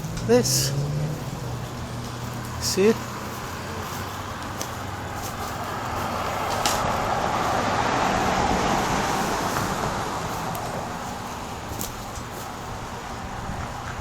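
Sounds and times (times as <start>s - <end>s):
car passing by: 0.0s - 11.8s.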